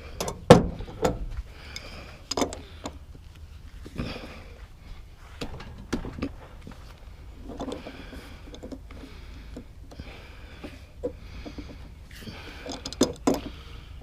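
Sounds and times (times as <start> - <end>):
metallic clicks and knocks: 0.2 - 3.0, 12.6 - 13.5.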